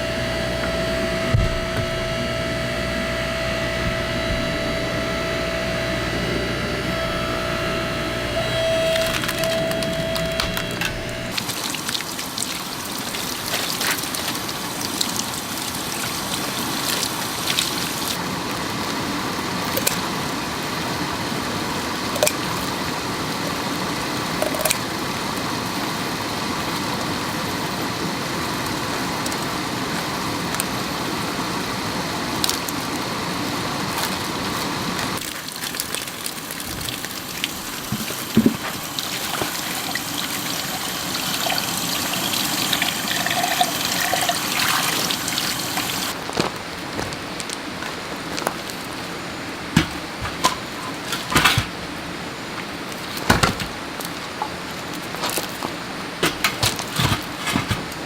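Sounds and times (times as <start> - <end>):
water rushing and trickling: 35.2 - 46.2.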